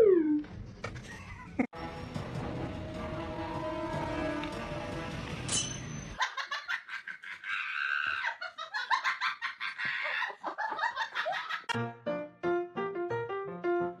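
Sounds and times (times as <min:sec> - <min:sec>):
people laughing: 0:06.2 - 0:11.8.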